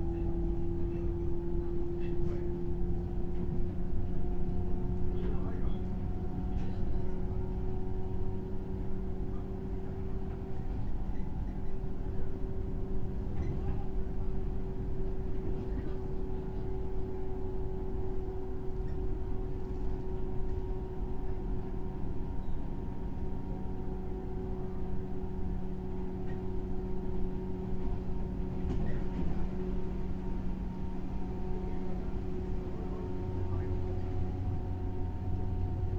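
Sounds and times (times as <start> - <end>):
wheels rumbling on rail: 0.0 - 35.9
train motor hum: 14.2 - 35.9.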